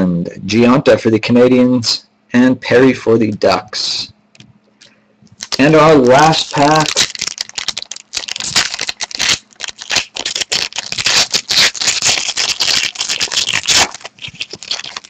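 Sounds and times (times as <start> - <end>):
wrapper tearing and crinkling: 5.4 - 15.0.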